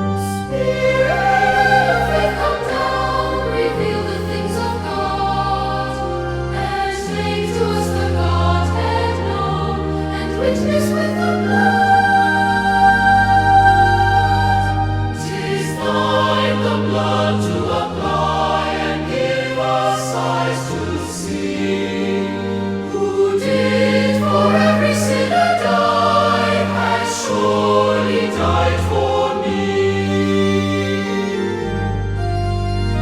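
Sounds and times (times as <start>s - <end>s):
choir singing a hymn: 0.0s - 33.0s
low bass line: 28.4s - 33.0s.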